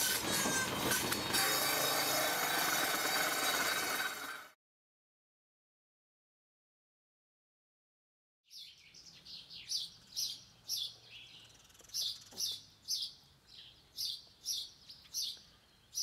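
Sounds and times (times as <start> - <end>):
songbird chirping: 8.5 - 16.0.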